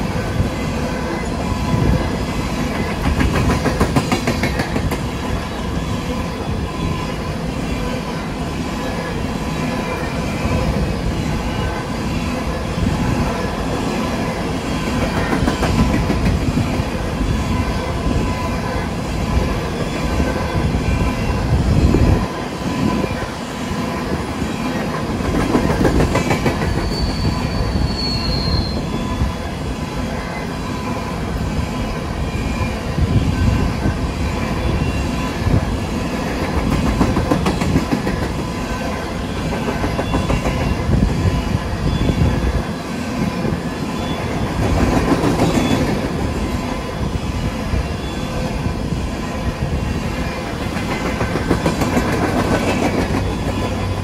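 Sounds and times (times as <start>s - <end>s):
freight cars rumbling on rails: 0.0s - 54.0s
high wheel squeal: 26.6s - 29.5s.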